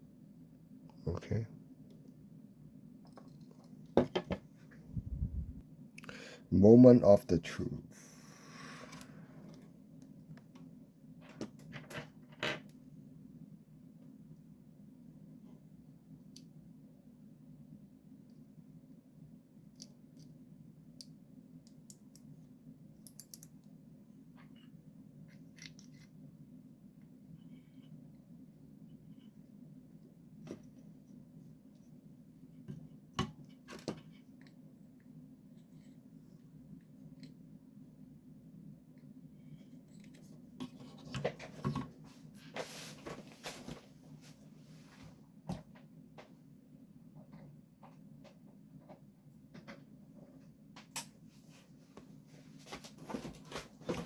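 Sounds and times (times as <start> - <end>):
faint low hum: 0.0 - 54.0
low hum: 4.8 - 5.7.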